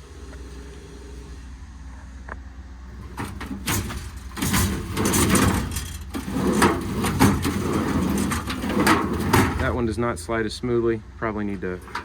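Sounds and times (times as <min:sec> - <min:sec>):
metal drawers sliding and rattling: 0:02.9 - 0:10.0, 0:11.8 - 0:12.0.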